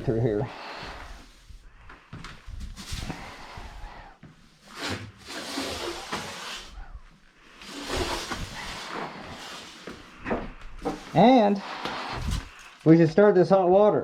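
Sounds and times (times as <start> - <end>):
broom sweeping hard floor: 2.6 - 12.6.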